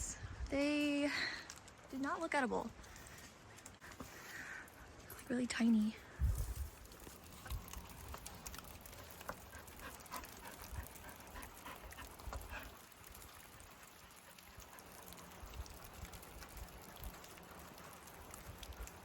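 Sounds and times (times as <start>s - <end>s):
faint footsteps on trail: 0.2s - 12.8s.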